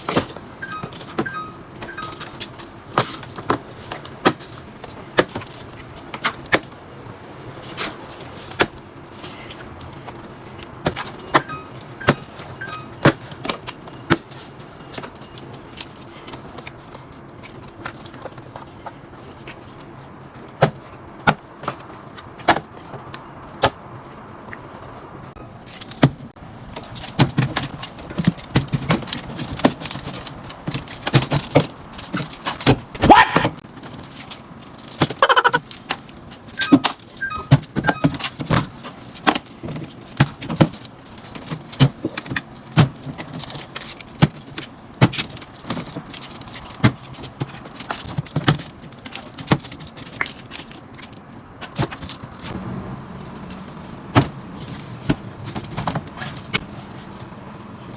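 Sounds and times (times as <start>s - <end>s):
packages clicking and rattling: 0.0s - 7.0s, 7.6s - 23.7s, 25.5s - 52.6s, 53.4s - 56.7s
brief squeaks: 36.6s - 38.2s.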